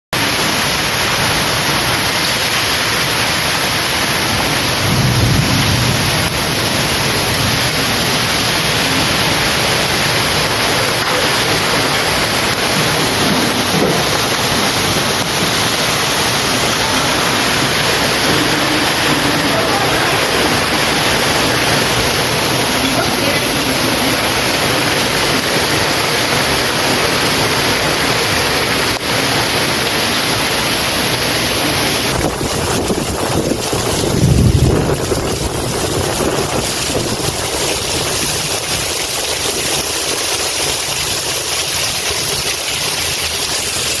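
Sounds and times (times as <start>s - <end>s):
heavy rain pouring: 0.1s - 44.0s
low rumble: 4.2s - 11.0s, 32.6s - 36.2s.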